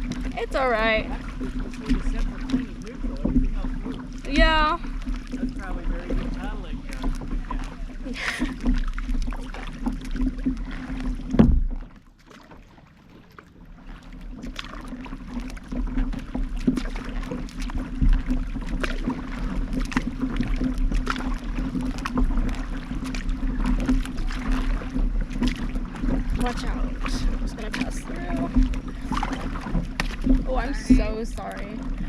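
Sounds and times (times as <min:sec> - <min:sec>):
paddle splashes: 0:00.0 - 0:32.0
water washing against hull: 0:00.0 - 0:32.0.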